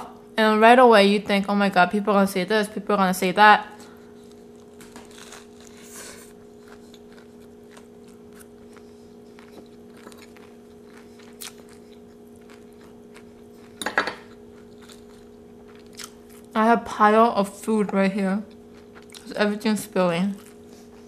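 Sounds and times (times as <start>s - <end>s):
low room hum: 0.0s - 21.0s
chewing and crunching: 3.8s - 16.6s, 18.5s - 19.7s, 20.3s - 21.0s.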